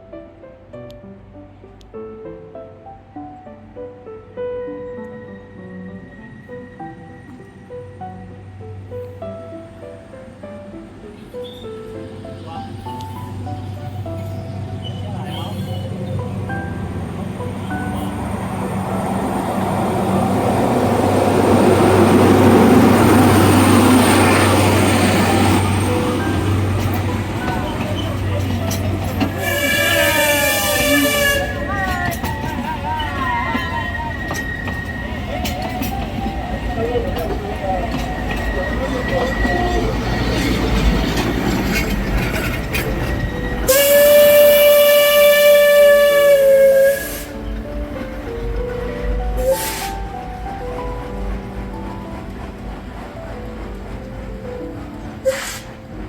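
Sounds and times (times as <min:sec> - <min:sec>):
train passing by: 0:02.8 - 0:56.0
steam whistle blast: 0:29.3 - 0:36.0, 0:43.5 - 0:47.5, 0:49.4 - 0:50.1, 0:55.2 - 0:55.7.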